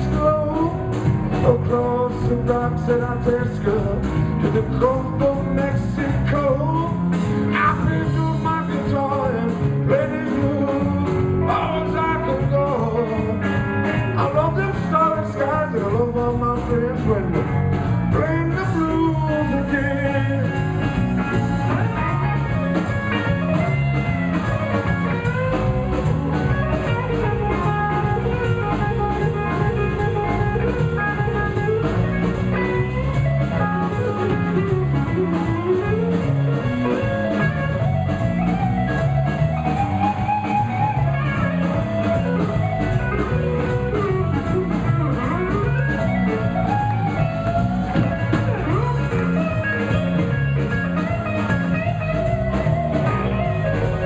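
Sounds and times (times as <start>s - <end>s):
bass guitar: 0.0s - 54.0s
drum kit beat: 0.0s - 54.0s
electric guitar solo: 19.4s - 54.0s.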